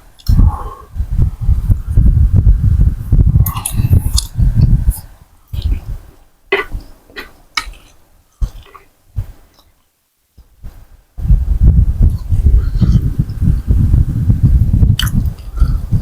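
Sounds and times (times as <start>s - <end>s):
low rumbling bursts: 0.0s - 6.9s, 10.6s - 16.0s
chewing: 3.4s - 5.9s, 6.5s - 9.9s
slurping soup: 6.6s - 8.9s.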